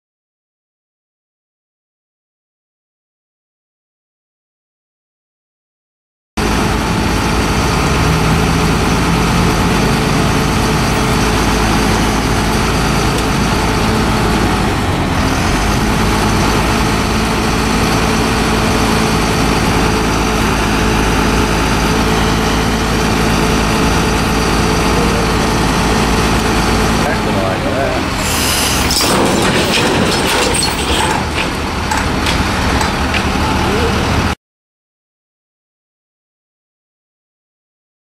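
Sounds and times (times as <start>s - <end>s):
road noise: 6.4s - 34.4s
vehicle engine running: 6.4s - 34.4s.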